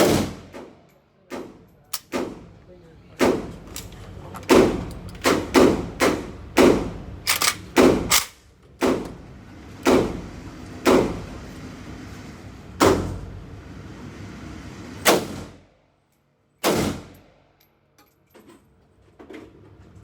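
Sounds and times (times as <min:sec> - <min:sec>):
gunshots with echo: 0:00.0 - 0:00.6.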